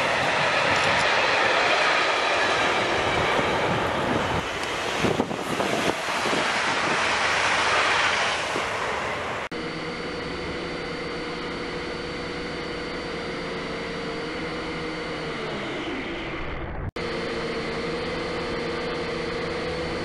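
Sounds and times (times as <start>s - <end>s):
train rushing past: 0.0s - 9.5s
drone motors humming: 8.6s - 20.0s.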